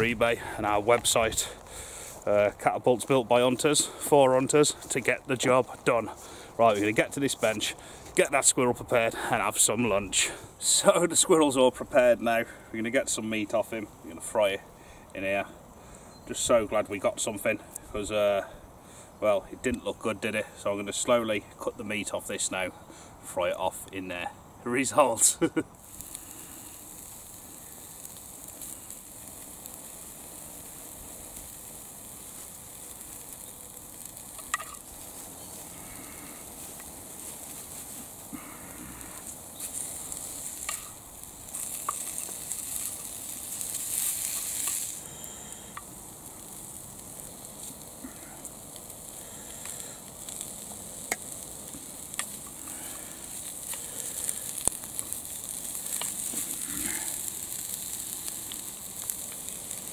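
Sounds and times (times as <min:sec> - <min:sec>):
meat and onion sizzling in a pan: 0:25.5 - 0:59.9.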